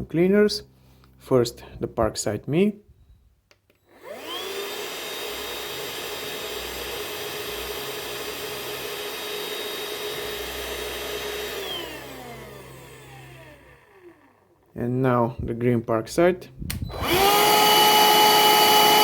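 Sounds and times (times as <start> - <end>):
handheld vacuum motor whine: 3.9 - 14.7, 16.8 - 19.0.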